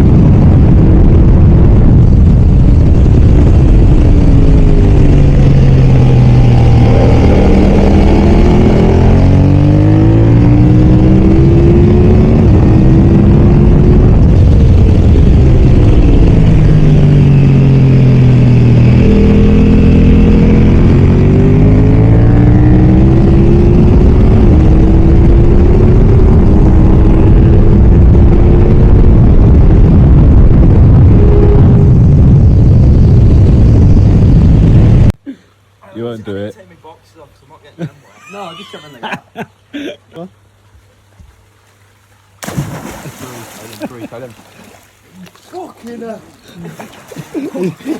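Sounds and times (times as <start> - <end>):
motorcycle engine revving: 0.0 - 35.2
wind roar: 0.0 - 35.2.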